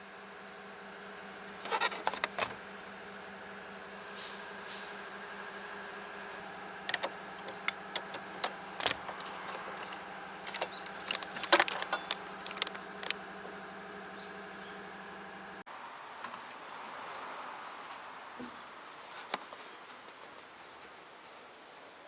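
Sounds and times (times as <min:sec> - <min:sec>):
vehicle driving hum: 0:00.0 - 0:15.9
clicking and knocking rattles: 0:01.6 - 0:02.6, 0:06.9 - 0:13.2.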